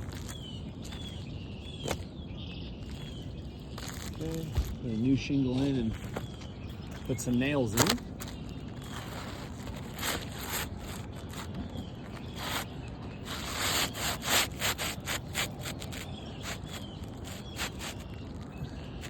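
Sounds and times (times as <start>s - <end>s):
roof shingles scraping: 5.8s - 19.0s.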